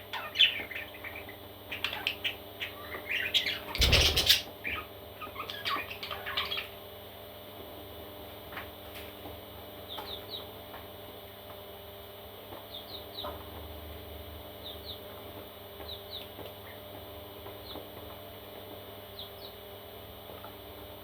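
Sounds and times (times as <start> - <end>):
parrot chicks cheeping: 0.0 - 6.8, 9.8 - 10.6, 12.7 - 13.6, 14.5 - 15.2, 15.8 - 16.9, 19.1 - 19.7.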